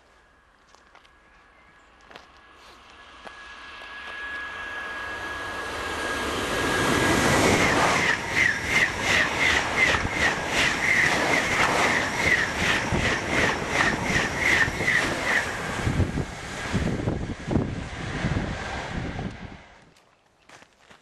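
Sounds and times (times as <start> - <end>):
faint high whine: 0.0 - 19.8
high-speed train passing: 0.0 - 19.9
train bogie beats: 2.1 - 17.8.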